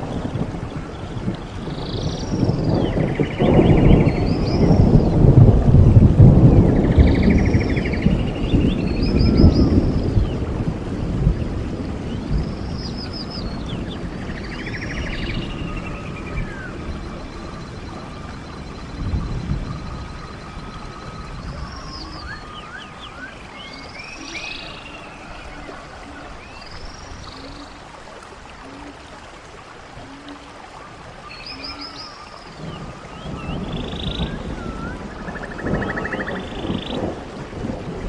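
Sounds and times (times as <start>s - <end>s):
stream running: 0.0s - 38.0s
birds singing whistled phrases: 19.7s - 27.7s, 31.2s - 37.0s.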